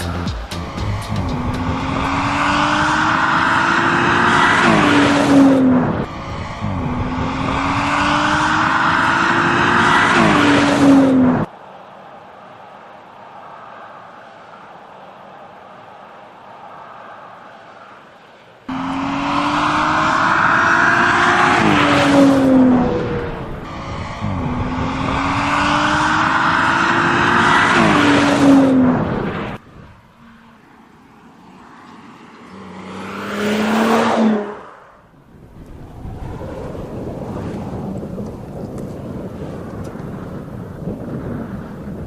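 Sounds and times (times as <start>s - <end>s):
car engine accelerating hard: 0.0s - 11.5s, 18.7s - 29.6s, 32.2s - 39.6s
car passing by: 0.2s - 11.5s, 13.4s - 42.0s.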